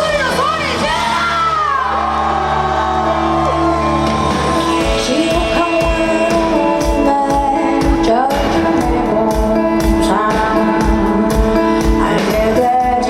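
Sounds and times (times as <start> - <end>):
live pop band music: 0.0 - 13.0
crowd shouting: 0.4 - 5.6
woman singing long notes: 1.8 - 11.3
drum beat: 2.1 - 12.1.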